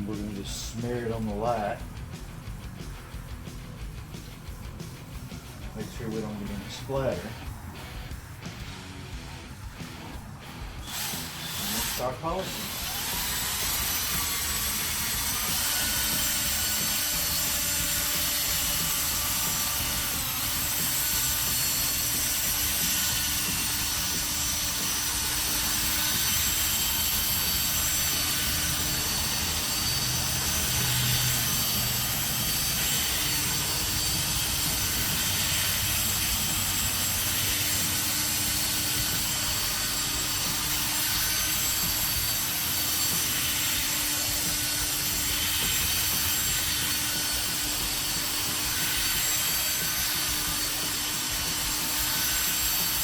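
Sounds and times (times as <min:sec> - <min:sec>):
drill with polishing pad on plastic: 0:10.8 - 0:53.0.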